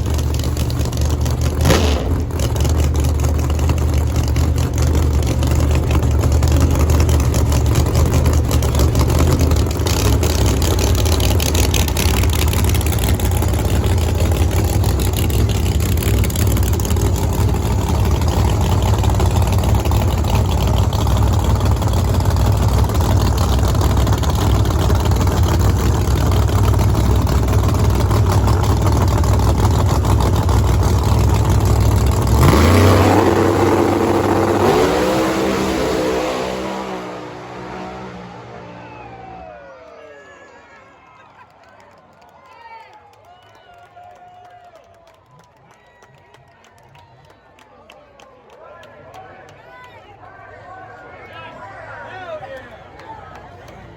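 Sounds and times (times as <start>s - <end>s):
engine revving up: 0.0s - 39.9s
race car engines idling: 0.0s - 41.4s.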